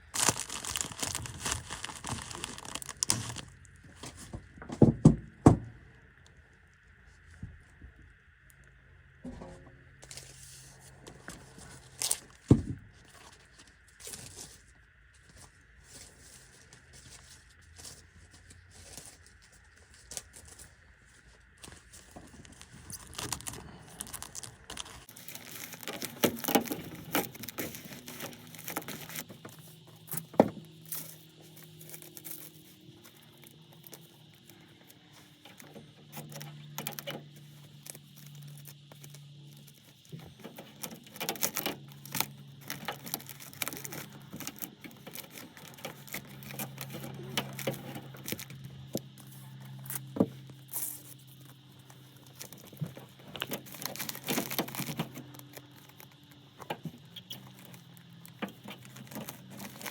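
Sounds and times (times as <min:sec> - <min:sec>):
flexible duct crinkling and rustling: 0:00.0 - 0:04.6, 0:10.0 - 0:59.9.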